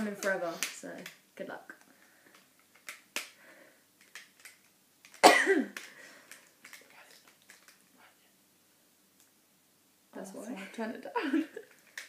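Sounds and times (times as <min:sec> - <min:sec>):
person coughing: 0:05.2 - 0:05.8
faint clicks: 0:05.8 - 0:07.9.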